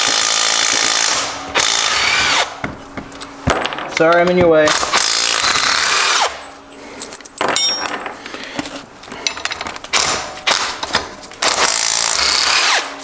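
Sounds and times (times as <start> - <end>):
metal tools clinking and knocking: 3.0 - 4.5, 6.3 - 8.4, 9.2 - 9.9.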